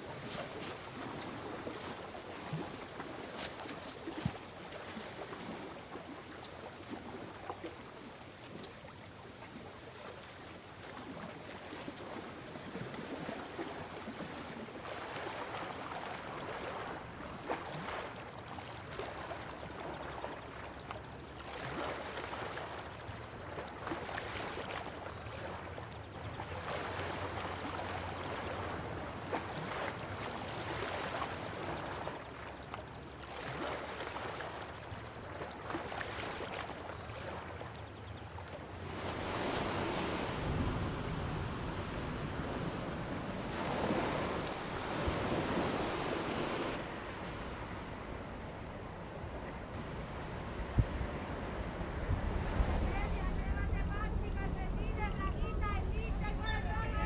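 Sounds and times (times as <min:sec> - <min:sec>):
water rushing along boat hull: 0:00.0 - 0:57.0
faint low hum: 0:47.1 - 0:57.0.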